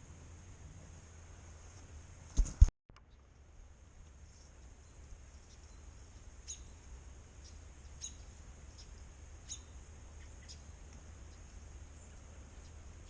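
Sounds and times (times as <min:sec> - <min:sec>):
low background rumble: 0:00.0 - 0:13.0
small bird chirping: 0:04.5 - 0:13.0.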